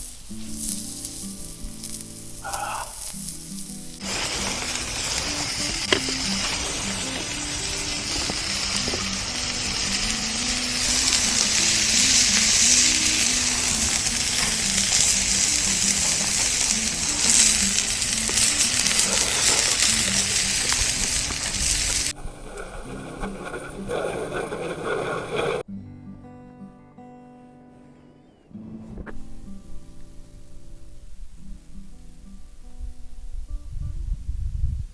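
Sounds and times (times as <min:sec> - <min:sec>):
soft background music: 0:00.0 - 0:24.6, 0:25.6 - 0:34.6
food sizzling on a grill: 0:00.0 - 0:25.6.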